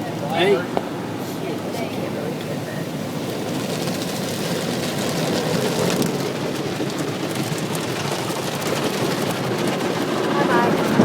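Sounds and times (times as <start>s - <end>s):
water drumming on car body: 0.0s - 11.0s.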